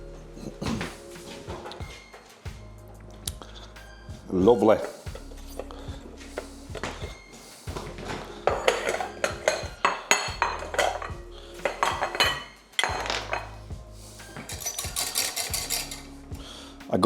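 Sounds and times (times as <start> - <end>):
background music: 0.0 - 17.0
utensils clattering on dishes: 6.3 - 13.6, 14.2 - 16.2.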